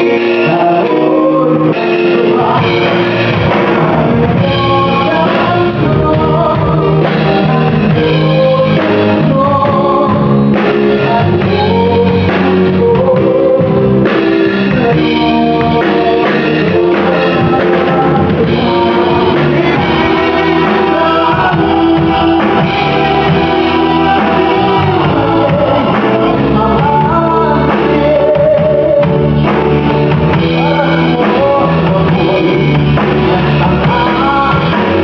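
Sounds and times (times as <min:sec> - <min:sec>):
live band playing: 0:00.0 - 0:35.0
person singing: 0:00.0 - 0:35.0.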